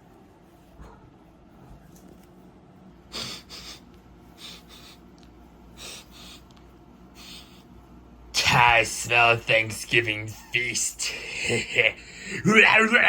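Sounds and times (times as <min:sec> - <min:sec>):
person sniffing: 0:03.1 - 0:03.8, 0:04.4 - 0:05.0, 0:05.8 - 0:06.5, 0:07.2 - 0:07.7.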